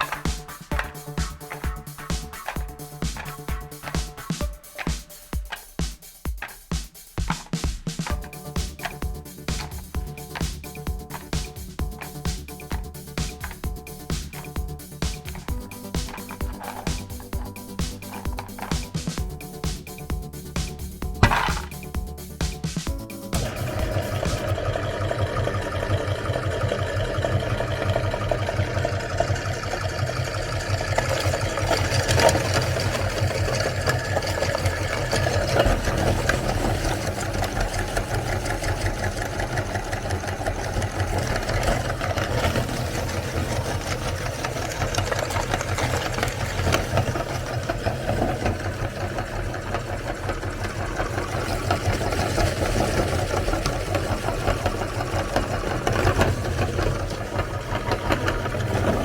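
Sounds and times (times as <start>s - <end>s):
cookies crackling in grinder: 0.0s - 59.0s
electric meat grinder motor humming: 23.4s - 59.0s.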